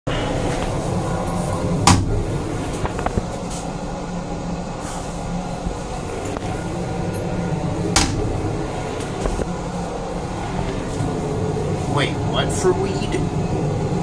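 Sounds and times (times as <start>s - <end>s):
railcar low rumble: 0.1s - 14.0s
toilet lid knock: 8.0s - 8.3s.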